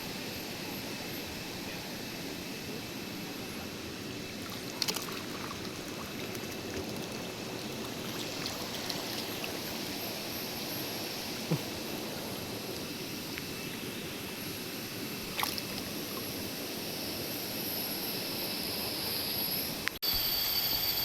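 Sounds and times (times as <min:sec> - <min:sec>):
stream water rushing: 0:04.2 - 0:16.3.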